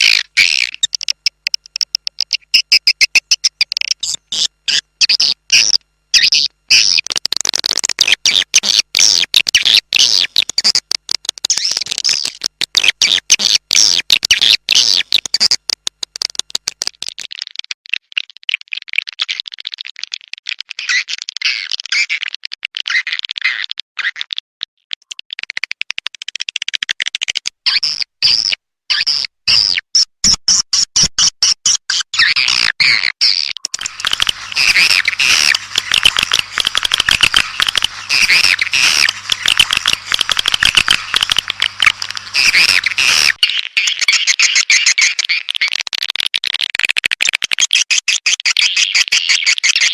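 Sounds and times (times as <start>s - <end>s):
swiftlet chirps twittering: 33.8s - 43.4s.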